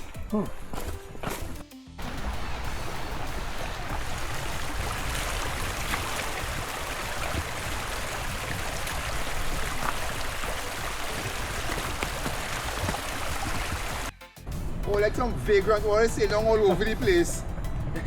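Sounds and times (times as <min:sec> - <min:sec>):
flowing water rushing: 0:02.0 - 0:14.1.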